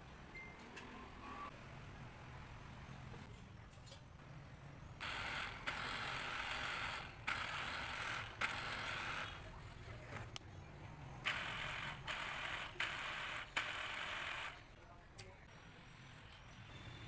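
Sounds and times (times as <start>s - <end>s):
small electric water pump: 5.0s - 9.5s, 11.3s - 14.6s.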